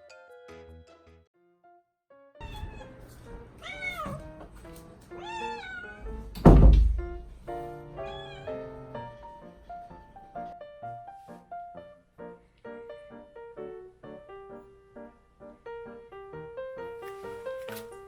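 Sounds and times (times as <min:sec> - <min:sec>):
background music: 0:00.0 - 0:06.4
cat meowing: 0:02.4 - 0:04.4, 0:05.1 - 0:06.3, 0:07.9 - 0:08.9
loud thump: 0:06.4 - 0:07.3.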